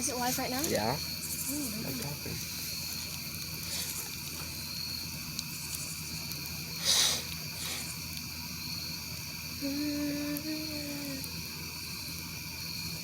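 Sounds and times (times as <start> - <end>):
fire popping: 0.0 - 9.4
campfire crackling: 0.0 - 13.0
short loud hiss: 6.8 - 8.0.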